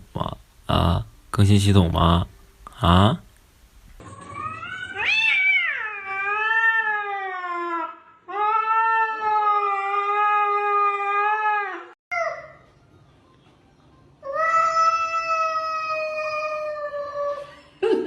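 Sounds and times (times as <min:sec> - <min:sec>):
cat yowling: 0:04.3 - 0:11.9.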